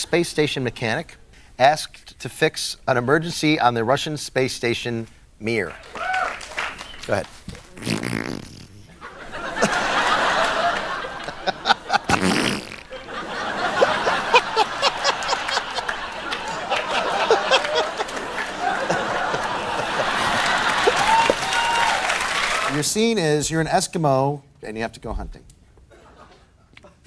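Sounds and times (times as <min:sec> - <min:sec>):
man making raspberry sounds: 0:07.1 - 0:09.0, 0:11.7 - 0:13.0
audience laughter: 0:08.9 - 0:22.8.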